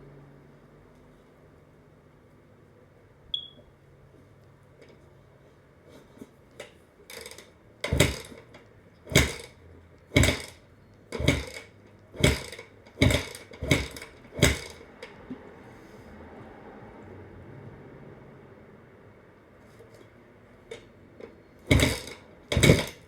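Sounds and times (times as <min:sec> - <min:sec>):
motorcycle engine kick-starting: 0:06.6 - 0:15.5, 0:20.6 - 0:23.0.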